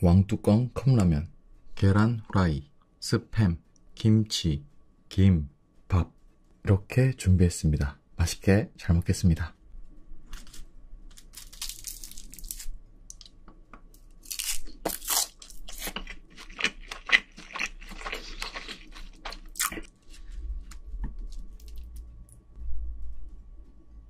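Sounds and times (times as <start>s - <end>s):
crunching crisp seaweed: 10.3s - 13.3s, 14.2s - 22.0s.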